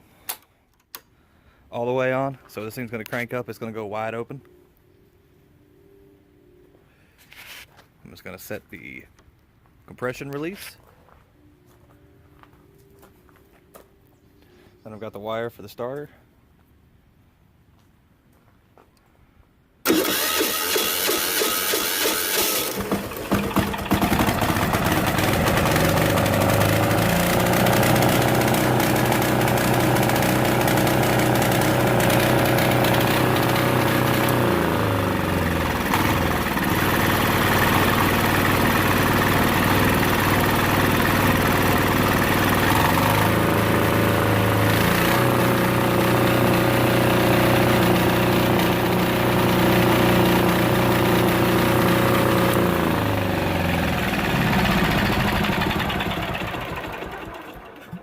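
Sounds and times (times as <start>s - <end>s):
electric starter cranking: 19.8s - 58.0s
diesel engine running: 19.9s - 58.0s.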